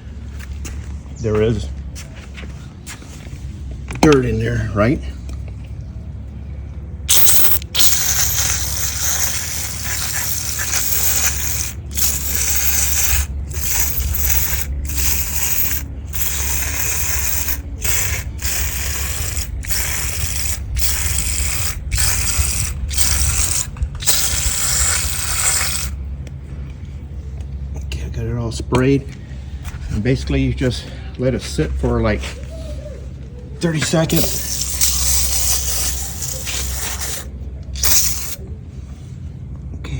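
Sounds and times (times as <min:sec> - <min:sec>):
aerosol can spraying hiss: 0:07.1 - 0:26.0, 0:34.1 - 0:38.4.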